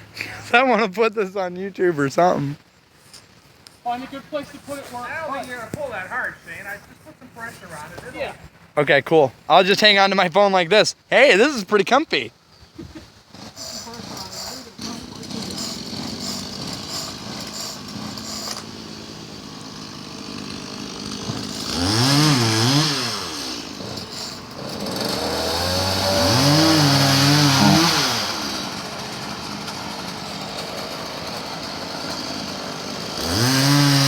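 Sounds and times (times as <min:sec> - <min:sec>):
chainsaw revving: 0:13.2 - 0:34.0.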